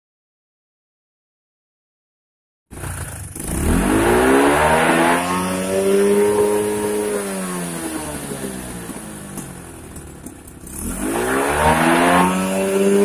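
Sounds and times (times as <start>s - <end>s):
small motorcycle engine revving: 2.7s - 13.0s.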